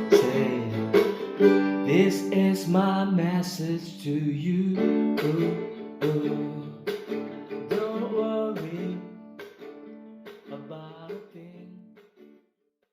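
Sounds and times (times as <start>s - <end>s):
acoustic guitar strumming chords: 0.0s - 12.4s.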